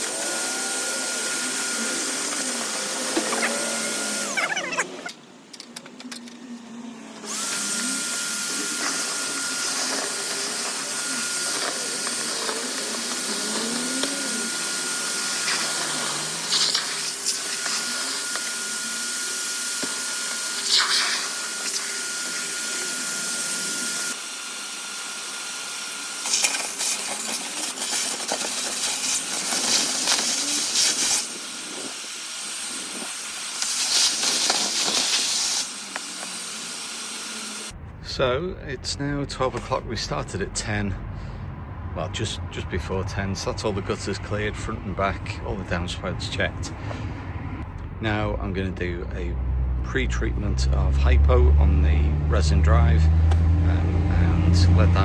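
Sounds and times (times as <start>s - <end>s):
gutter vacuum suction with whistle: 7.2s - 37.7s.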